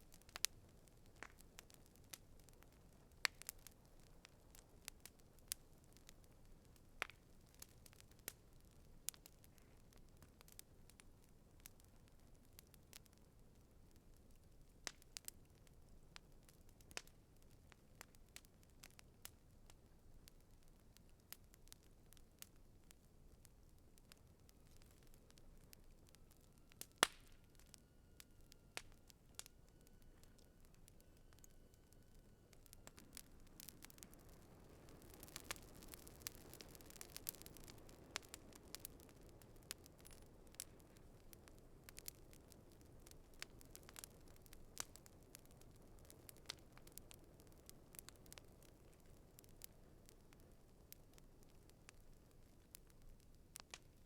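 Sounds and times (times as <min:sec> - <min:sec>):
campfire crackling: 0:00.0 - 0:54.0
soft rustle of burning: 0:00.0 - 0:54.0.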